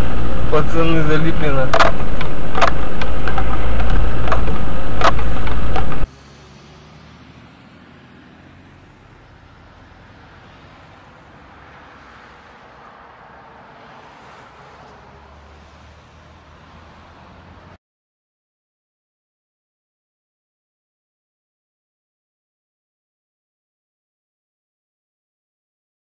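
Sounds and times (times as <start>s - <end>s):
car engine and road noise: 0.0s - 17.8s
rushing road noise: 0.0s - 17.8s
sharp clicks: 1.7s - 6.1s.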